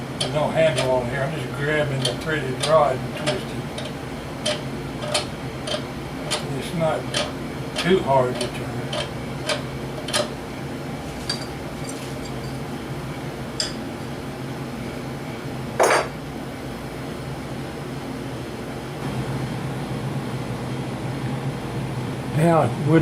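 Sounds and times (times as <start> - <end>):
steady low hum: 0.0 - 23.0
metallic clink: 13.6 - 13.8.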